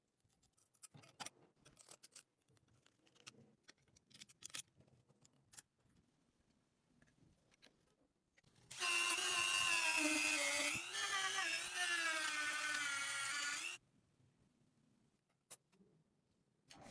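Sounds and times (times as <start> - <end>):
power tool motor whining: 8.7 - 13.8.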